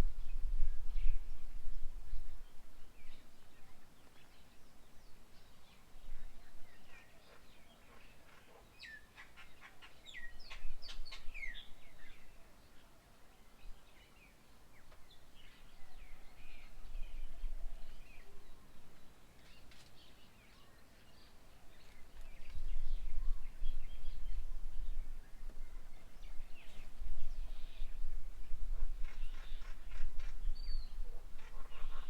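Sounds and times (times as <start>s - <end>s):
birds chirping and calling: 28.8s - 32.0s.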